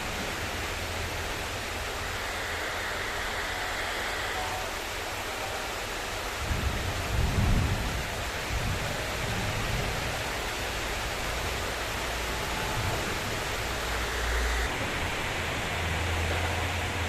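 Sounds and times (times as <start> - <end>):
heavy rain pouring: 0.0 - 17.0
thunder rumbling: 6.2 - 17.0.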